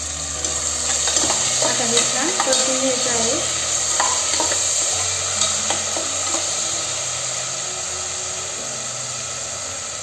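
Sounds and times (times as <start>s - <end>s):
food sizzling in hot oil: 0.0s - 10.0s
metal spatula scraping pot: 0.4s - 6.6s.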